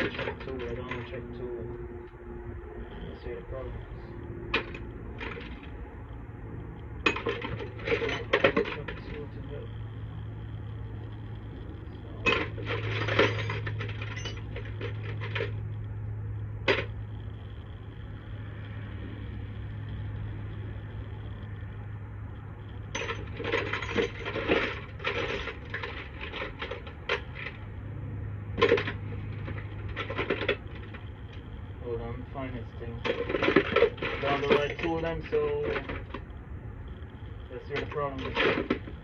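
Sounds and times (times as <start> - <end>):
metal tools clinking and rattling: 0.0 - 1.3, 4.5 - 5.7, 7.0 - 9.7, 12.1 - 15.6, 22.9 - 27.6, 28.6 - 31.5, 32.4 - 36.2, 37.6 - 39.0
steady low hum: 0.0 - 39.0.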